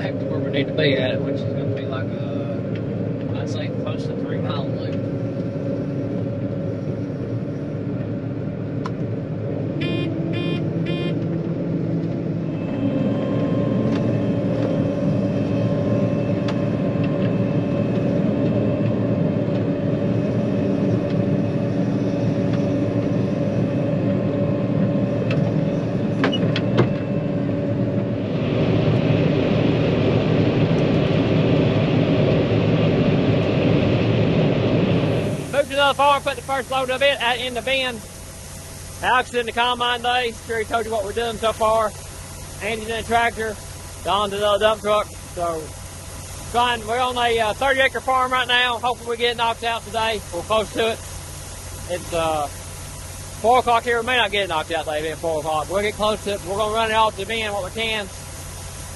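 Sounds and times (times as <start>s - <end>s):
farm vehicle engine running: 0.0s - 58.9s
short electronic beeps: 9.8s - 11.2s.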